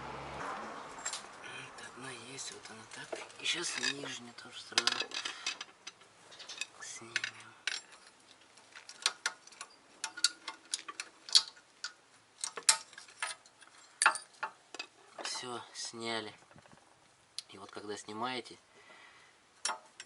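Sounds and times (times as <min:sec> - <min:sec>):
metallic clicks and clinks: 0:03.4 - 0:15.6.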